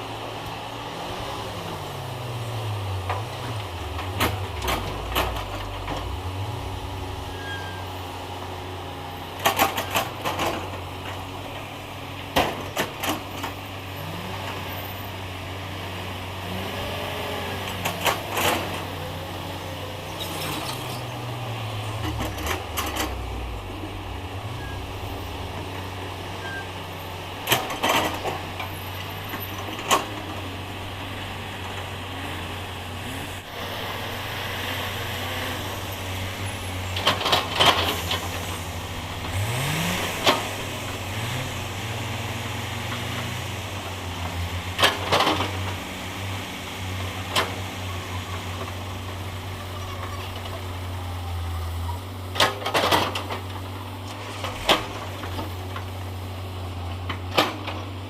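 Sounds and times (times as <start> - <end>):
diesel machinery engine running: 0.0 - 58.0
metal clanks and knocks: 3.1 - 7.7.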